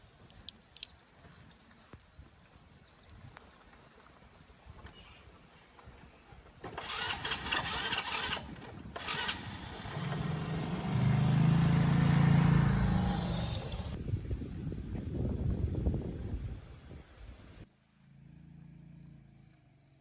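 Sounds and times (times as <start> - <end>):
rattling noise: 6.6 - 10.7
engine starting and running: 6.6 - 14.0.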